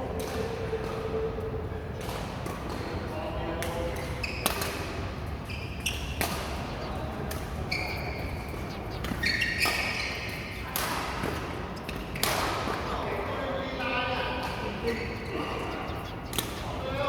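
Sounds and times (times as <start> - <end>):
shoe squeaks on court: 4.1 - 4.6, 7.7 - 10.6
racket hitting shuttlecock: 6.0 - 6.6, 8.6 - 12.7.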